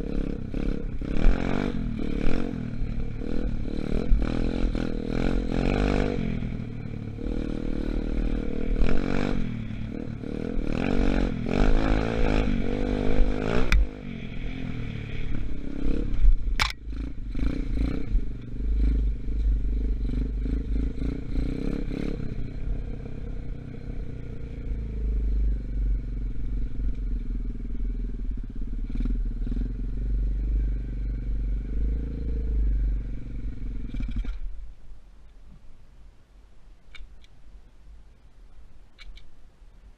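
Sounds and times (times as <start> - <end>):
dirt bike engine revving: 0.0 - 23.2
sharp click: 16.5 - 16.8, 36.9 - 37.4, 39.0 - 39.3.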